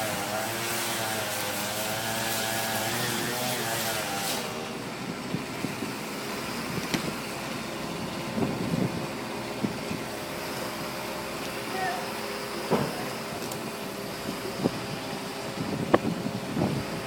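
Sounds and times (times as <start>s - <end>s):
pitched engine hum: 0.0s - 17.0s
steady engine rumble: 0.0s - 17.0s
knocks and clunks: 12.6s - 13.1s.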